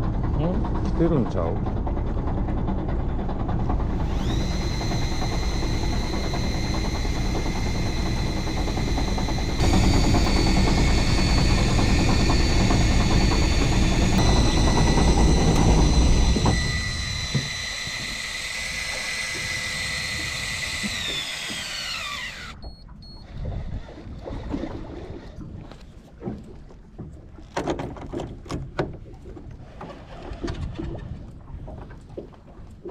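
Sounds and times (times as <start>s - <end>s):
low rumble: 0.0s - 20.4s
motor whining: 3.5s - 24.3s.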